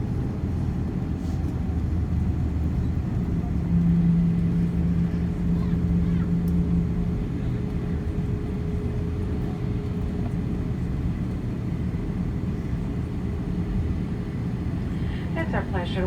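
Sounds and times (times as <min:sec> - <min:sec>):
airliner cabin rumble: 0:00.0 - 0:16.0
strong low drone: 0:02.5 - 0:08.1.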